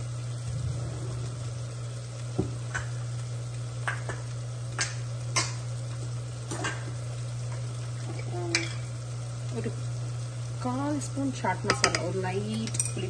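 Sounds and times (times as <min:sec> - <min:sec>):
food sizzling in a pot: 0:00.0 - 0:13.0
steady low hum: 0:00.0 - 0:13.0
clinks against metal pot: 0:11.6 - 0:13.0.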